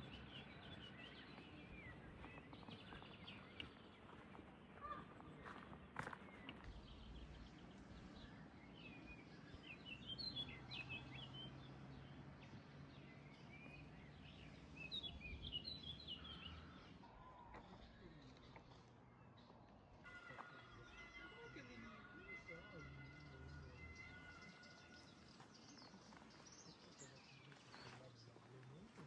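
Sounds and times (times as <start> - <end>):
faint outdoor background noise: 0.0 - 29.0
songbird chirping: 0.0 - 29.0.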